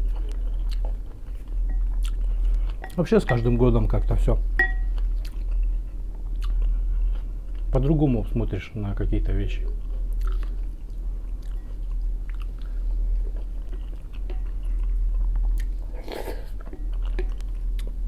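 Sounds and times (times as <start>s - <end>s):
chewing and biting food: 0.0s - 2.9s, 4.8s - 7.7s, 9.7s - 18.0s
steady low hum: 0.0s - 18.0s.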